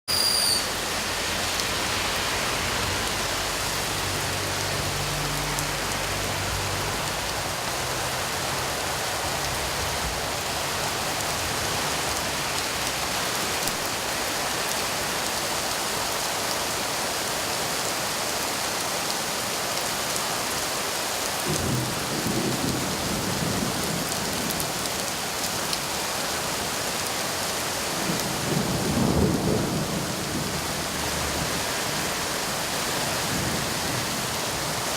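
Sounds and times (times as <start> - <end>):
heavy rain falling: 0.2 - 34.9
thunder rumbling: 28.0 - 31.6.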